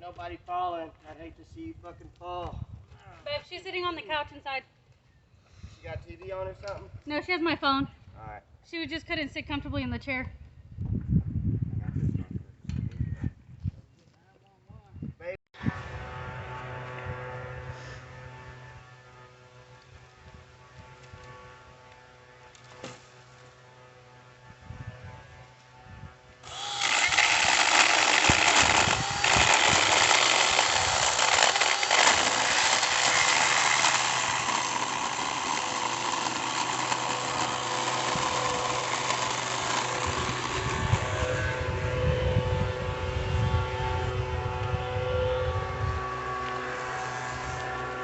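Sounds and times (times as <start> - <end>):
power saw cutting tree limb: 20.9 - 24.4, 26.4 - 42.0, 46.1 - 48.0.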